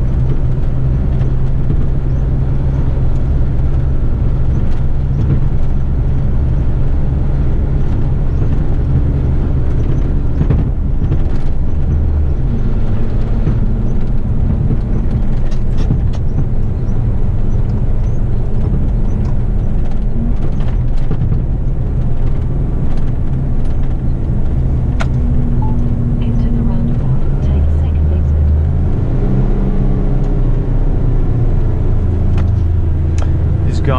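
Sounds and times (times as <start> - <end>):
road noise: 0.0 - 33.9
truck diesel engine drone: 0.0 - 33.9.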